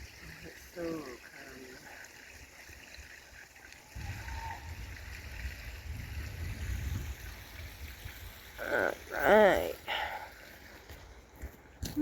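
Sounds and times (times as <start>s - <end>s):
wind buffeting microphone: 3.9s - 8.6s.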